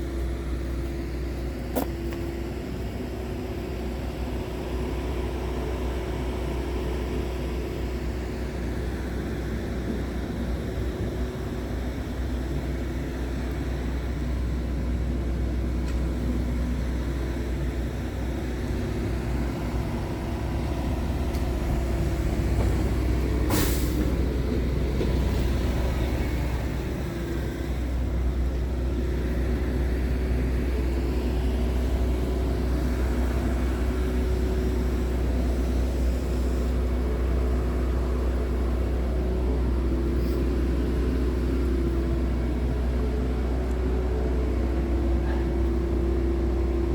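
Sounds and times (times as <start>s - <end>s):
truck diesel engine running: 0.0s - 46.9s
air release hiss: 23.5s - 24.1s.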